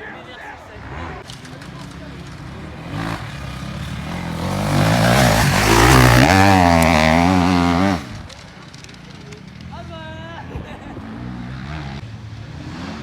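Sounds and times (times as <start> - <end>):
dirt bike engine revving: 0.7 - 10.0, 10.6 - 13.0.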